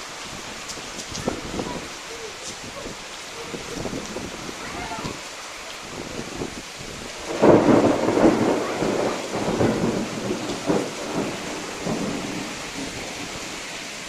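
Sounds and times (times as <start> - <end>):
heavy rain: 0.0 - 14.0
thunder rumbling: 0.0 - 14.0.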